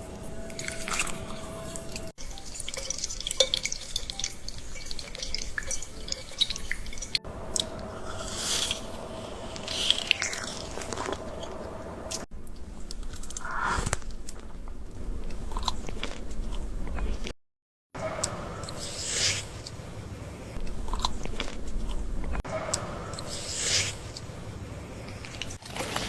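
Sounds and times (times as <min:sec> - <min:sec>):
wet sticky eating sounds: 0:00.0 - 0:12.2, 0:13.8 - 0:17.3, 0:20.6 - 0:25.6.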